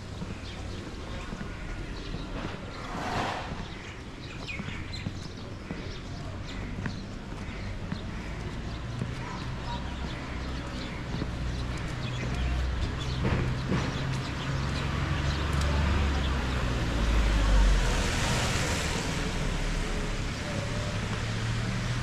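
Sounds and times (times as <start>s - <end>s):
road traffic rumble: 0.0s - 22.0s
vehicle passing: 2.4s - 4.2s.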